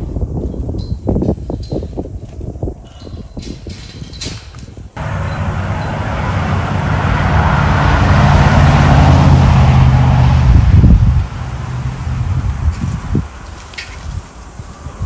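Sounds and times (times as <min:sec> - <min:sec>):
wind and road noise: 0:00.0 - 0:15.0
vehicle engine running: 0:05.0 - 0:13.6.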